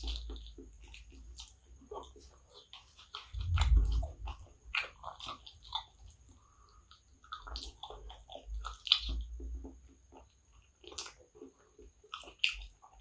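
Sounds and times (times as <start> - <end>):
chewing and wet mouth smacks: 0.0 - 13.0
low thud: 3.4 - 4.3.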